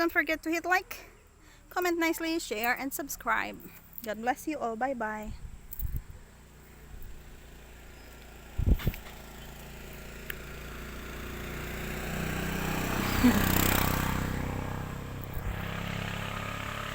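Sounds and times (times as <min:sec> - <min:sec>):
vehicle passing by: 0:06.0 - 0:16.9.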